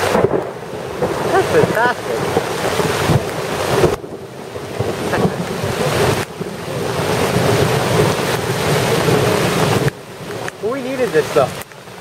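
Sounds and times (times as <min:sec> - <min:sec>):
heavy rain pouring: 0:00.0 - 0:12.0
wind buffeting the microphone: 0:00.0 - 0:12.0.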